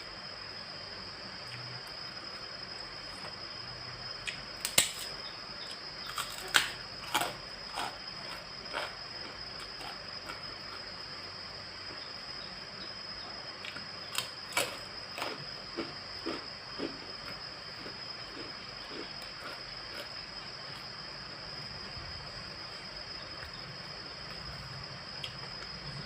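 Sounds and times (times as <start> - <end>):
faint high whine: 0.0 - 26.0.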